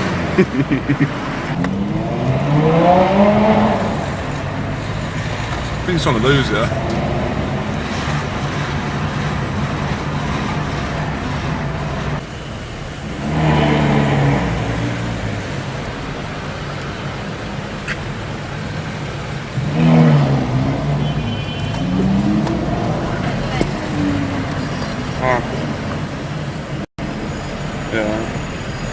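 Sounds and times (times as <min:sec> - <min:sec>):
engine revving: 0:00.0 - 0:12.2, 0:13.0 - 0:16.0, 0:19.5 - 0:26.4
cars driving in traffic: 0:00.0 - 0:28.9.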